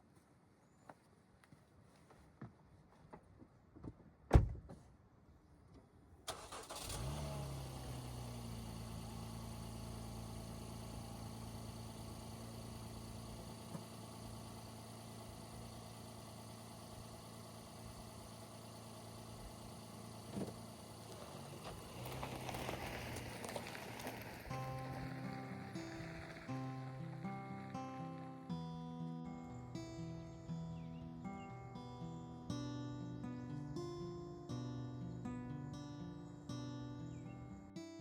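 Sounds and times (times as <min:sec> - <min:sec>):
car engine starting and idling: 0:06.3 - 0:28.3.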